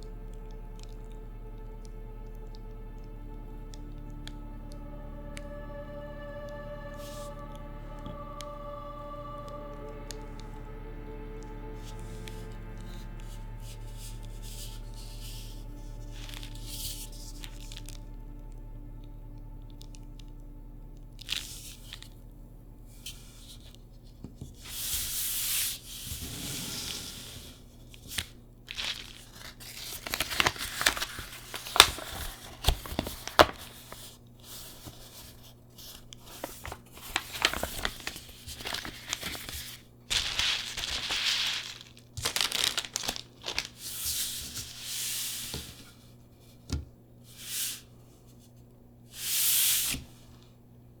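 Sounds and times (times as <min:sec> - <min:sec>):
plastic wrapping crinkling: 0:27.6 - 0:44.9.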